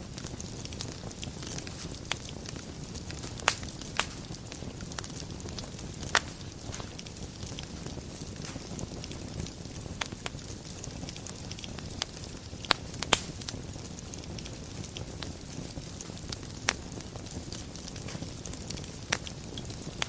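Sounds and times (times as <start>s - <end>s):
fire crackling and popping: 0.0s - 20.0s
flames rumbling: 0.0s - 20.0s.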